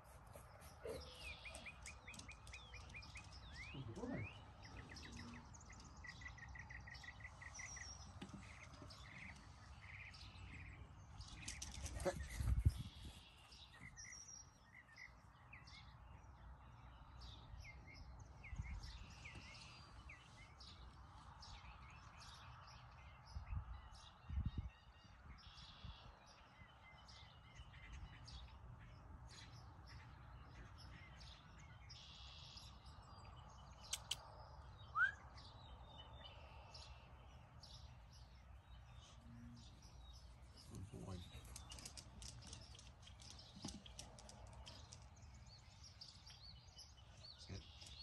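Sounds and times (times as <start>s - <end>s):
songbirds chirping: 0.0s - 48.0s.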